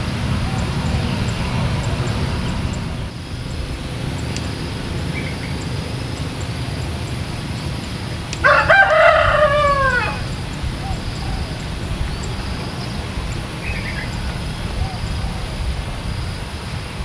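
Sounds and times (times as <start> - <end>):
low background rumble: 0.0 - 17.0
rooster crowing: 8.2 - 15.5.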